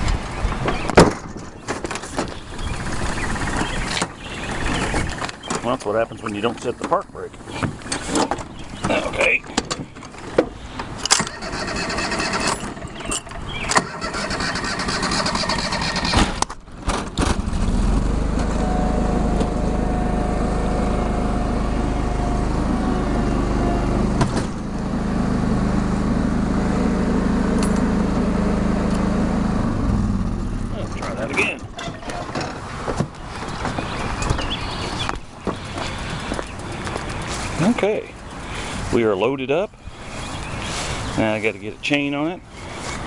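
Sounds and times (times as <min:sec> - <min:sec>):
tractor engine running: 0:00.0 - 0:43.0
clunks: 0:30.8 - 0:37.4.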